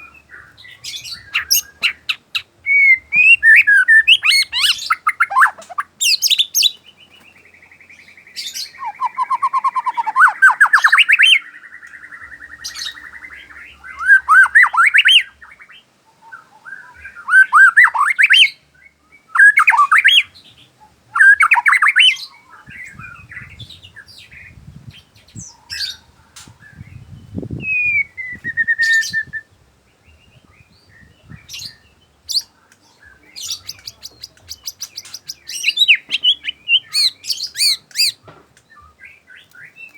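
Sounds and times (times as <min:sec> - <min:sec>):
bird singing whistled phrases: 0:00.0 - 0:06.8, 0:08.5 - 0:11.5, 0:12.4 - 0:15.4, 0:16.7 - 0:18.6, 0:19.3 - 0:20.3, 0:21.2 - 0:22.3, 0:27.5 - 0:29.5, 0:33.4 - 0:38.2.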